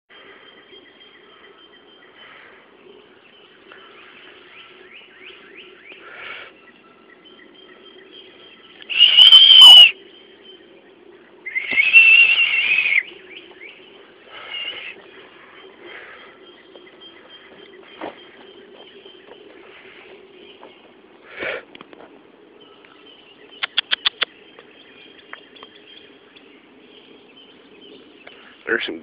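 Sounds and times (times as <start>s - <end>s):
twittering bird chirps: 0.1s - 21.3s, 22.2s - 29.0s
loud wavering bird calls: 0.1s - 29.0s
low steady hum: 0.1s - 29.0s.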